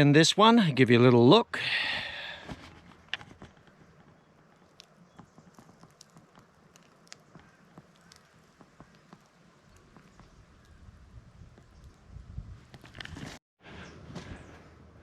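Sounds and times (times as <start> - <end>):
small items clicking and tapping: 2.9 - 10.3.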